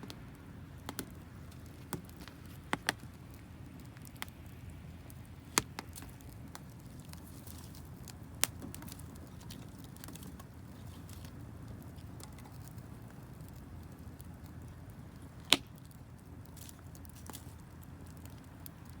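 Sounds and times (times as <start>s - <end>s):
campfire crackling: 0.0s - 19.0s
fire popping: 0.0s - 19.0s.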